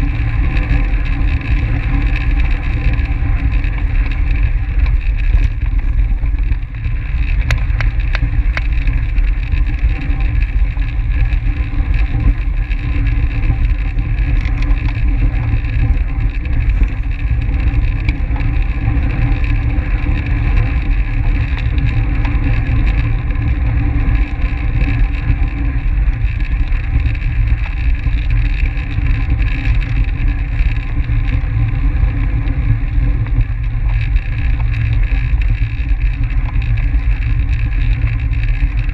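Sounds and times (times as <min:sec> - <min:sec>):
wind rushing over microphone: 0:00.0 - 0:38.9
faint clicks: 0:01.4 - 0:18.7.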